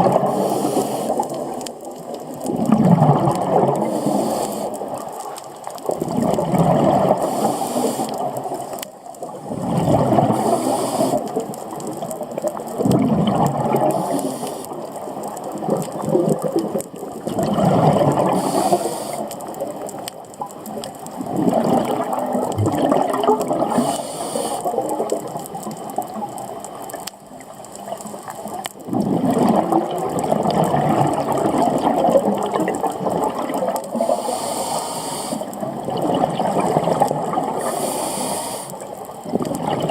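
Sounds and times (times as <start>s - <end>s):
exhaled bubbles bubbling: 0.0s - 39.9s
regulator inhalation hiss: 0.3s - 1.2s, 3.8s - 4.8s, 7.2s - 8.2s, 10.4s - 11.3s, 13.9s - 14.8s, 18.4s - 19.3s, 23.7s - 24.7s, 34.0s - 35.5s, 37.6s - 38.8s.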